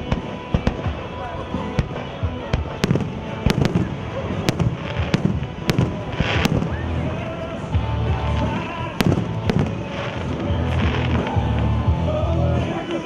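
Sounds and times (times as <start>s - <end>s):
fireworks bangs: 0.0s - 13.0s
music with strong bass: 0.0s - 13.0s.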